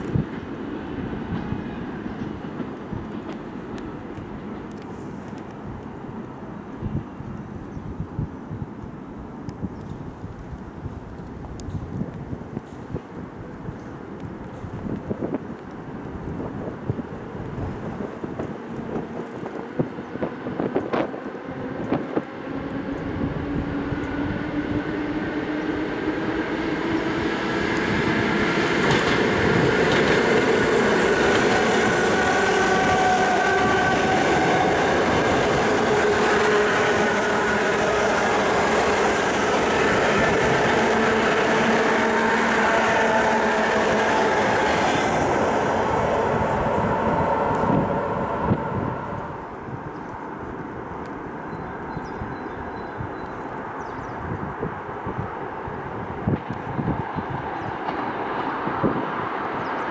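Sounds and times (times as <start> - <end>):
train wheels rumbling on rail: 0.0 - 59.9
train whining tones: 18.8 - 49.7.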